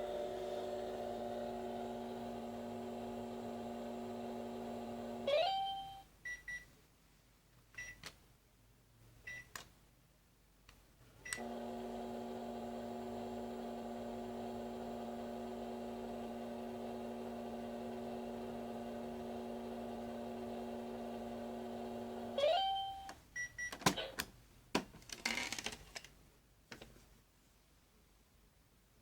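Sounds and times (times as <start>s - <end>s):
toy microwave buzzing hum: 11.3s - 23.1s.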